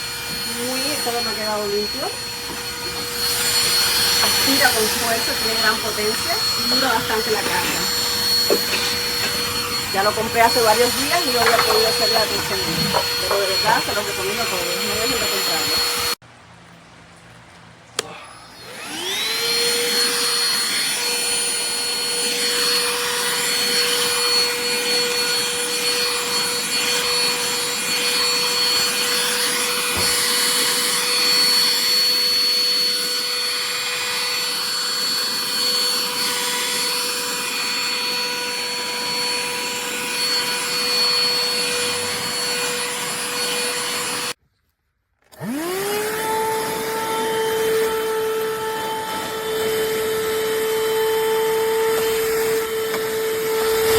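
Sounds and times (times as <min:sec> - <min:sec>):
handheld vacuum motor whine: 0:00.0 - 0:16.2, 0:18.0 - 0:44.4, 0:45.2 - 0:53.9.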